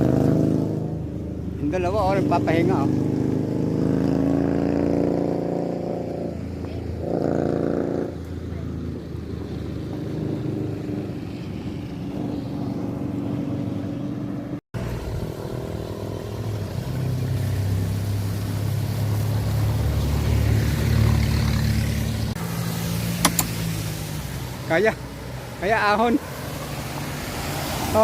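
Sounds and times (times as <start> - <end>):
vehicle engine running: 13.8 - 26.4.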